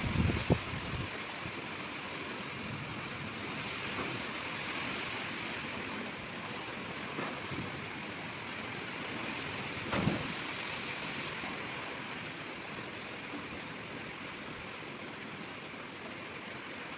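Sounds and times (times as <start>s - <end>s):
heavy rain falling: 0.0s - 16.9s
thump: 9.9s - 10.3s.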